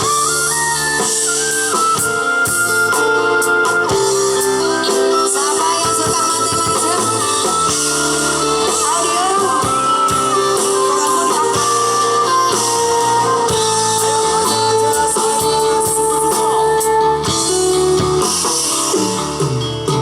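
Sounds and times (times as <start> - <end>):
guitar: 0.0 - 20.0
loud music over sound system: 0.0 - 20.0
person singing: 4.4 - 19.2.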